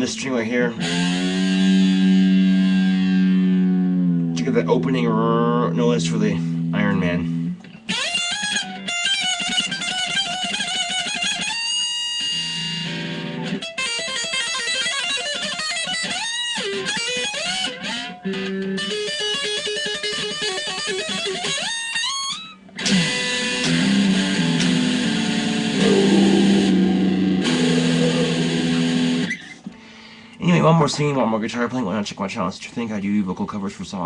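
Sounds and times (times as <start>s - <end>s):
electric guitar string bends: 25.7s - 29.3s.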